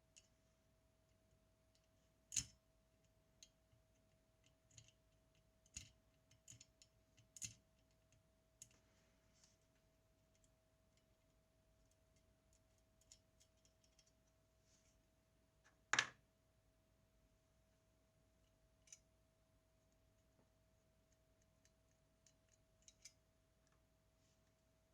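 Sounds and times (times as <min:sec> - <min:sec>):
faint steady hum: 0:00.0 - 0:24.9
small clicks and taps of tools: 0:01.7 - 0:08.8, 0:11.8 - 0:14.4, 0:18.4 - 0:19.1, 0:21.1 - 0:23.8.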